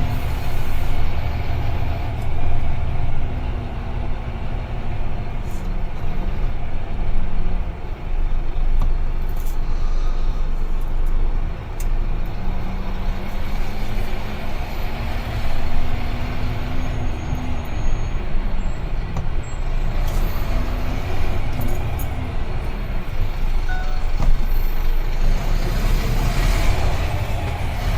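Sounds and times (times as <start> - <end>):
heavy truck driving: 0.0 - 27.9
faint engine tone: 8.2 - 11.8, 15.7 - 25.4.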